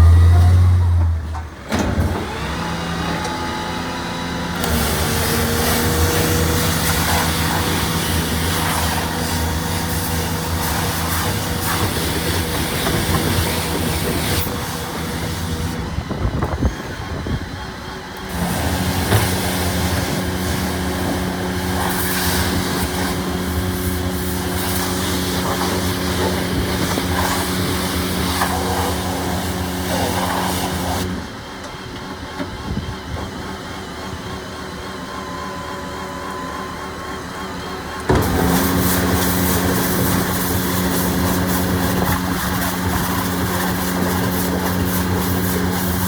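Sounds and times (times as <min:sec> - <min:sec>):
street traffic noise: 0:00.0 - 0:35.2
garbage truck diesel engine running: 0:00.0 - 0:46.0.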